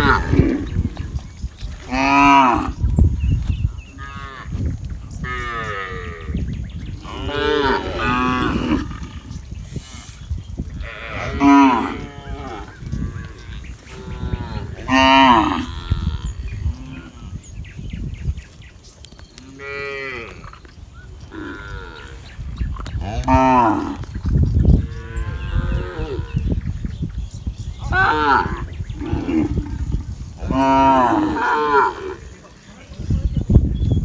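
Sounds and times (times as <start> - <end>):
cattle mooing: 0.0 - 0.9, 7.0 - 9.4, 10.8 - 17.2, 27.8 - 32.3.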